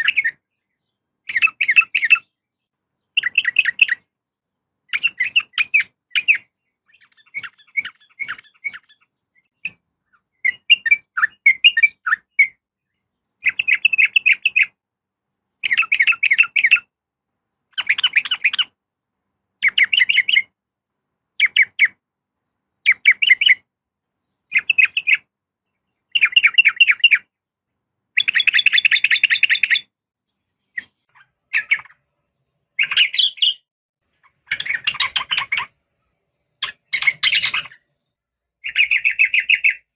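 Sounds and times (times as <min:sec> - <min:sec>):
bird giving chattering calls: 0:04.9 - 0:12.6, 0:34.2 - 0:35.7.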